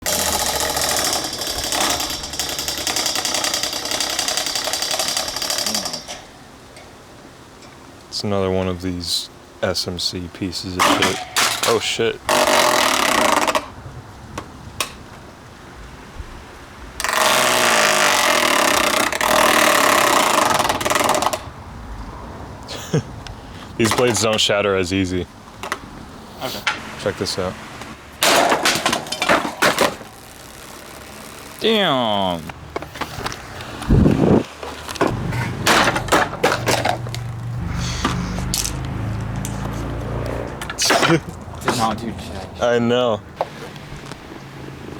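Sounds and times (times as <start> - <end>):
sharp clattering knocks: 0.0 - 6.3, 28.1 - 30.2, 34.6 - 37.5
fan blades clattering: 0.0 - 8.4, 10.6 - 15.3, 23.7 - 26.0, 26.6 - 30.3, 31.6 - 42.4.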